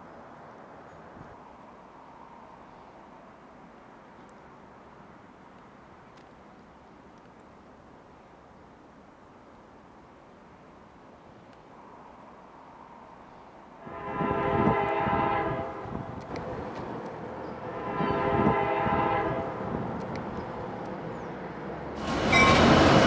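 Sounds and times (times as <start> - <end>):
train rolling rush: 12.0 - 23.0
train horn blasts: 13.8 - 16.1, 17.6 - 19.7, 22.3 - 22.8
high wheel squeal: 22.3 - 22.8.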